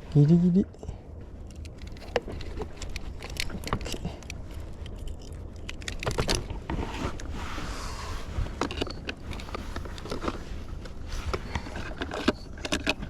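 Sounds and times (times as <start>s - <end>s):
steady low rumble: 0.0s - 13.0s
handling clicks and knocks: 1.4s - 7.3s, 8.5s - 13.0s.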